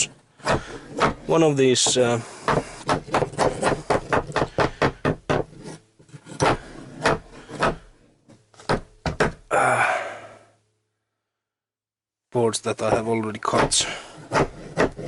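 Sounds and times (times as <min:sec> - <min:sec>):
wooden knocks: 0:00.0 - 0:05.6, 0:06.4 - 0:09.5
wooden board scraping: 0:00.0 - 0:09.4, 0:12.8 - 0:15.0.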